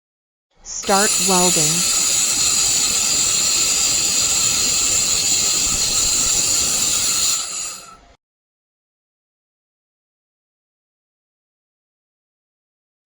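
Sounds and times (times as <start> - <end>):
laser welding hiss and whine: 0.7 - 8.1.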